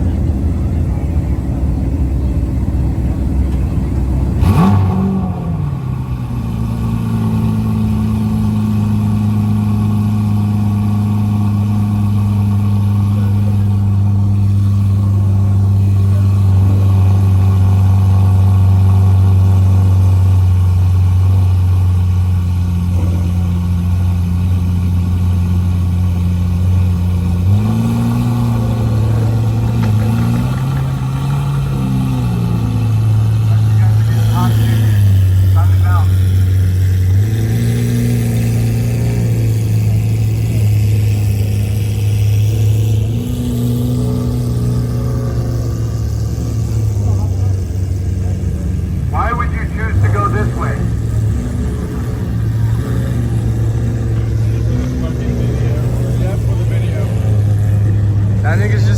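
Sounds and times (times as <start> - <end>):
car engine idling and revving: 0.0 - 58.9.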